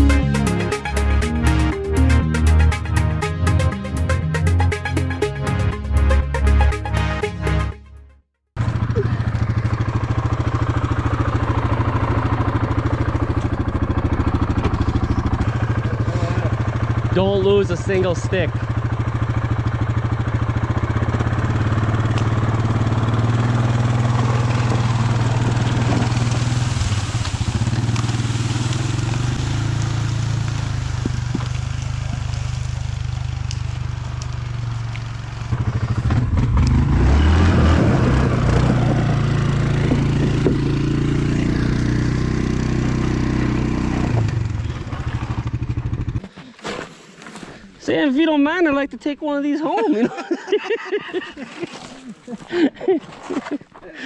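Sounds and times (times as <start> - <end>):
small engine running: 8.6 - 46.2.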